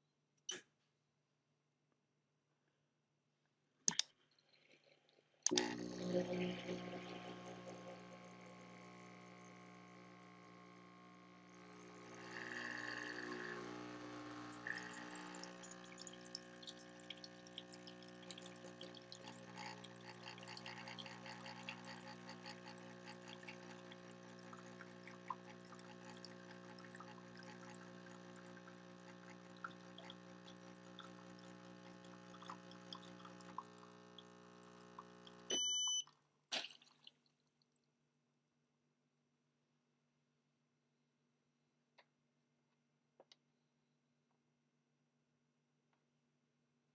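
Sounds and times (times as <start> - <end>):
espresso machine pump humming: 5.5 - 35.8
espresso dripping into cup: 5.5 - 36.0
short electronic beep: 35.5 - 36.1.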